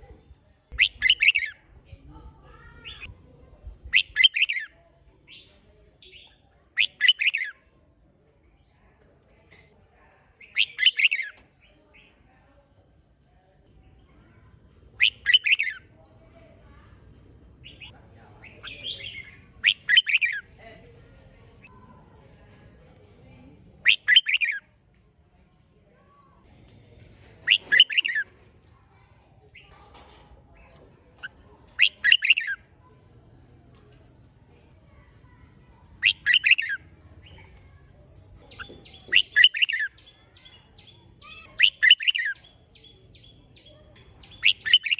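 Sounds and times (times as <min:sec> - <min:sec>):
bulbul singing warbled phrases: 0:00.0 - 0:01.7, 0:02.7 - 0:04.7, 0:05.3 - 0:07.6, 0:10.3 - 0:12.3, 0:15.0 - 0:16.2, 0:17.6 - 0:20.6, 0:23.1 - 0:24.6, 0:27.2 - 0:28.2, 0:30.6 - 0:34.4, 0:35.1 - 0:44.9.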